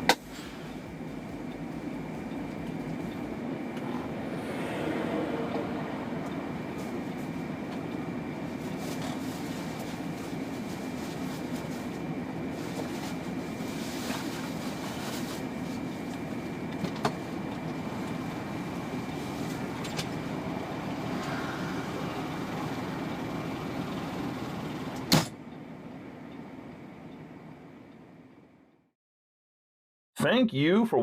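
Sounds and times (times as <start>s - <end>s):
vehicle rumbling on the move: 0.0s - 28.7s
faint high tone: 1.0s - 7.9s.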